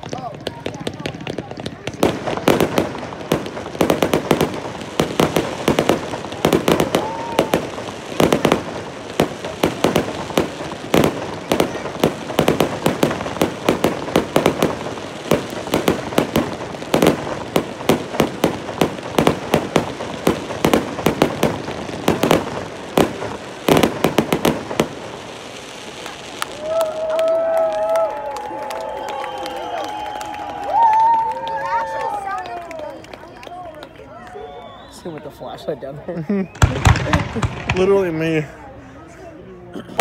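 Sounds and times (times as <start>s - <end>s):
fireworks bangs and pops: 0.0s - 29.8s, 36.4s - 38.4s.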